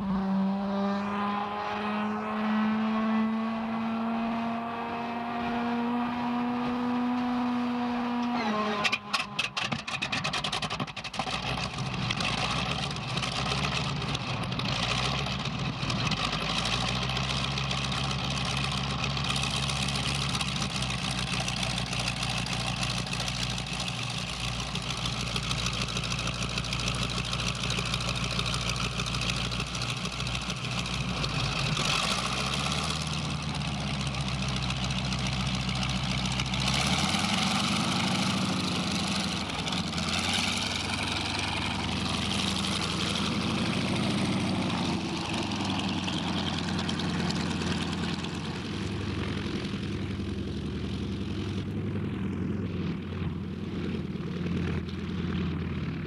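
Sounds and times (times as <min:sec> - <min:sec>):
engine starting and idling: 0:08.4 - 0:17.1.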